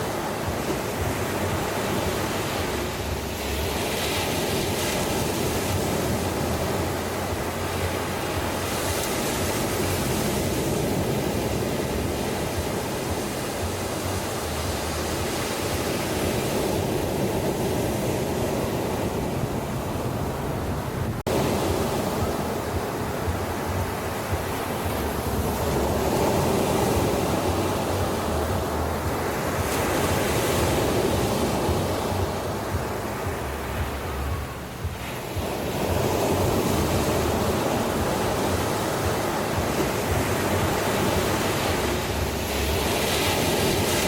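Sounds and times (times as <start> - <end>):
sea waves washing onto beach: 0.0 - 44.0.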